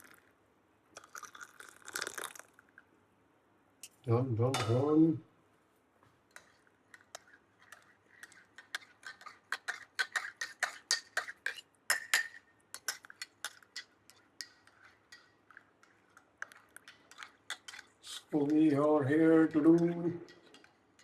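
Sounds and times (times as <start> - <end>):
kitchenware clinking: 4.5 - 5.0, 6.3 - 21.0.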